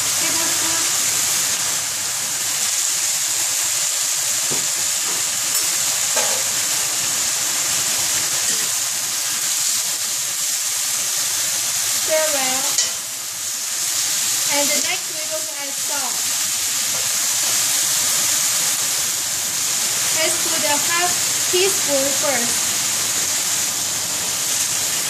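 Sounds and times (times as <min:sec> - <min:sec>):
cabbage leaves sizzling in a skillet: 0:00.0 - 0:25.0
spatula stirring leaves: 0:07.7 - 0:08.9.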